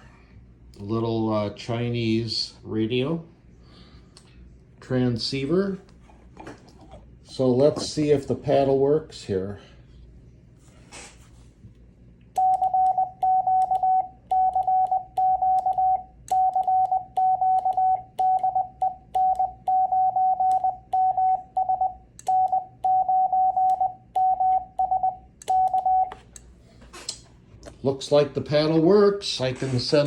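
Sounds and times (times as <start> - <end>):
morse code beeps: 12.4 - 26.2.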